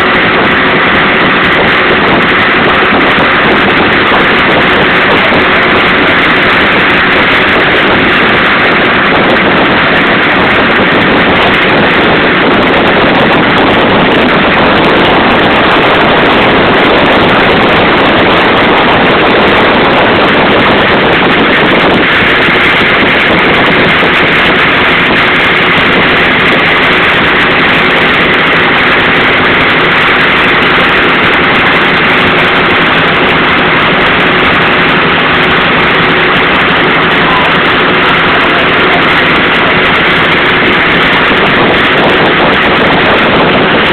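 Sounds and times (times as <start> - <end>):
boat engine droning: 0.0 - 43.9
wind on microphone: 0.0 - 43.9.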